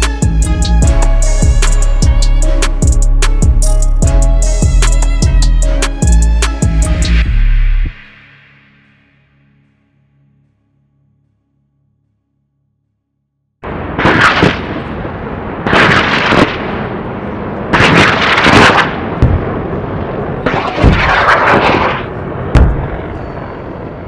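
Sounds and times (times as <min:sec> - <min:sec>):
heavy booming hits: 0:19.2 - 0:19.7, 0:22.4 - 0:23.2.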